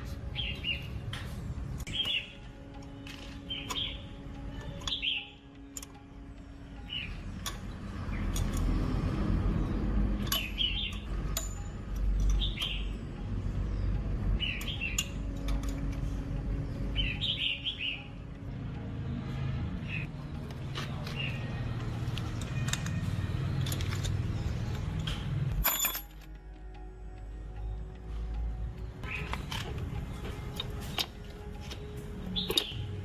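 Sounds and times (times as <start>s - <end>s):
small birds chirping: 1.9s - 5.7s, 9.6s - 11.4s, 12.0s - 18.3s, 28.8s - 29.6s, 30.4s - 33.0s.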